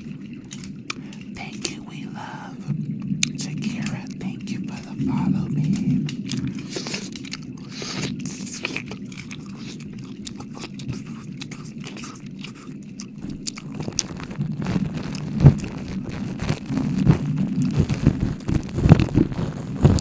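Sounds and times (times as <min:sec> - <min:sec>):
low steady hum: 0:00.0 - 0:20.0
wet mouth clicks and smacks: 0:06.1 - 0:19.2.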